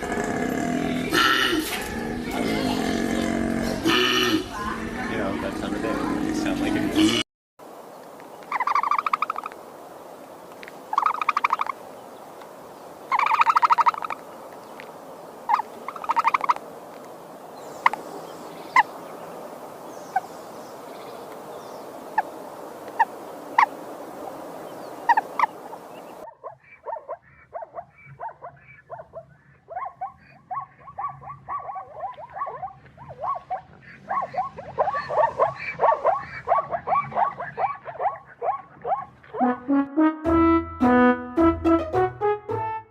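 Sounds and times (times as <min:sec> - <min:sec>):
rapid chattering calls: 0:08.4 - 0:09.6, 0:10.9 - 0:11.8, 0:13.1 - 0:14.2, 0:15.5 - 0:16.6, 0:25.0 - 0:38.9
buzzy trilling animal calls: 0:08.5 - 0:09.6, 0:10.9 - 0:11.7, 0:13.1 - 0:14.2, 0:15.5 - 0:16.6
sharp animal chirps: 0:08.5 - 0:09.6, 0:10.9 - 0:11.7.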